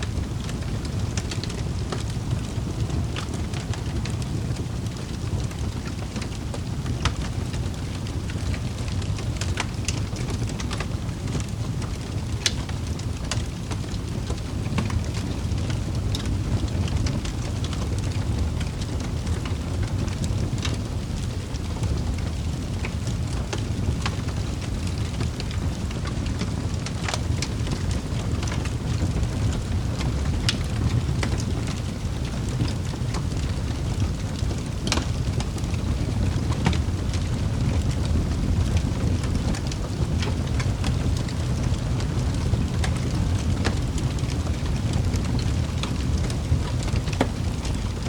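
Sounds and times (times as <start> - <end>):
wood fire crackling in fireplace: 0.0 - 48.0.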